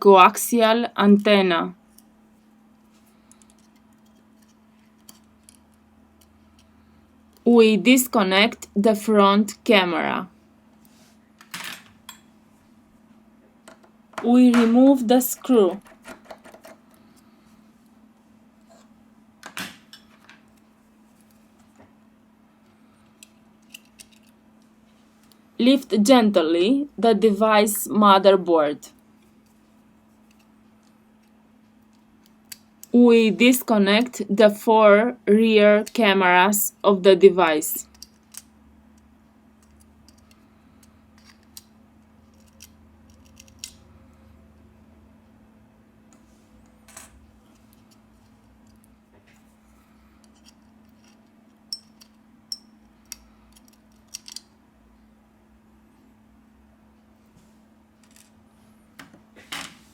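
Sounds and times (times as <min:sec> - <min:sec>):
faint steady hum: 0:00.0 - 0:59.9
small tools clicking and tapping: 0:23.2 - 0:24.4, 0:37.8 - 0:43.8, 0:50.2 - 0:54.5.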